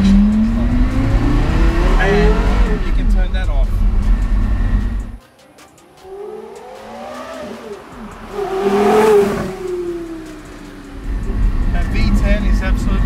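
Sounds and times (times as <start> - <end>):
sports car accelerating past: 5.9 - 12.7.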